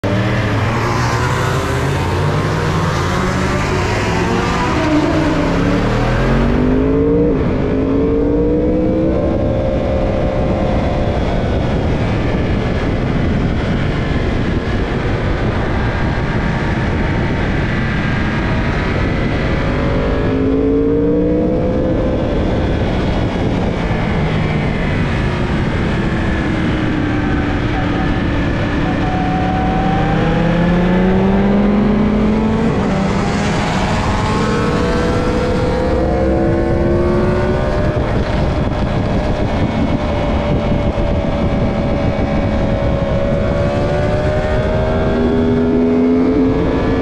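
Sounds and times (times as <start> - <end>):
racing motorcycle engine accelerating: 0.0 - 47.0
wind rush: 0.0 - 47.0.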